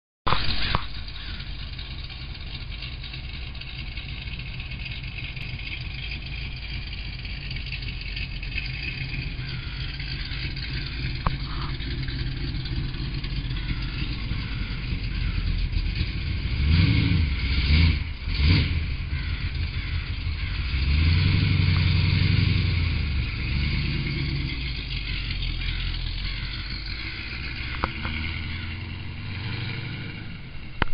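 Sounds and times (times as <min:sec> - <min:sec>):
clacking: 0:00.3 - 0:16.7, 0:19.4 - 0:30.9
car engine idling and revving: 0:00.3 - 0:30.9.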